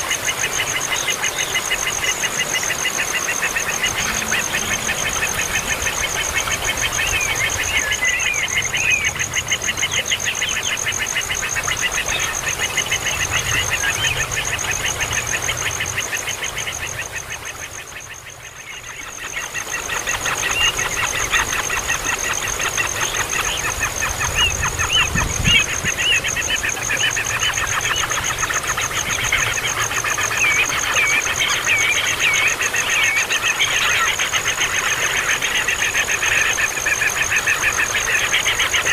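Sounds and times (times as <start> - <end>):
high-pitched whine: 0.1 - 9.4.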